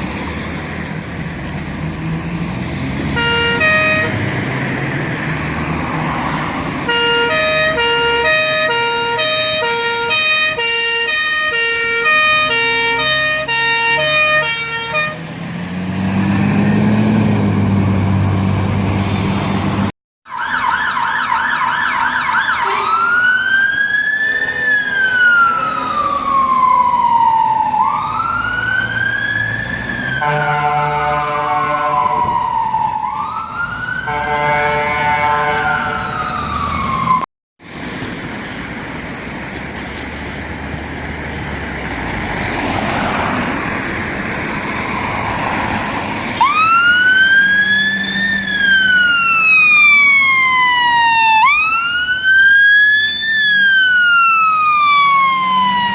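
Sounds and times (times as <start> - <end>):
fire engine pulling away: 0.0 - 55.9
two-tone siren: 3.0 - 4.2, 6.9 - 15.2, 20.2 - 37.3, 46.3 - 55.9
siren yelp and wail: 6.9 - 15.2, 20.2 - 37.3, 46.3 - 55.9.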